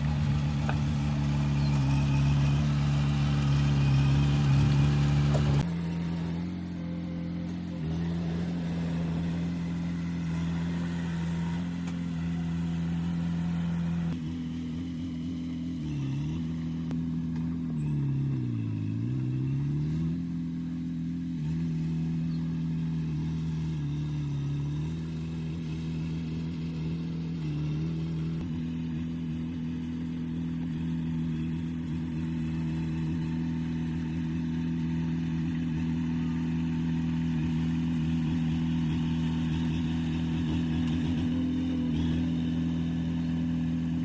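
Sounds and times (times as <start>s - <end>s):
heavy diesel engine under load: 0.0s - 44.0s.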